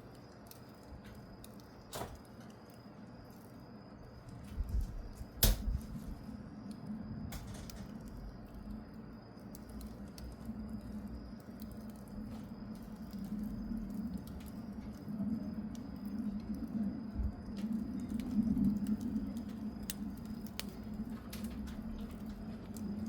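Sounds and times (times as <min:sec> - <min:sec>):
wood fire crackling: 0:00.0 - 0:23.0
sharp pops and snaps: 0:04.6 - 0:06.1, 0:09.4 - 0:15.0.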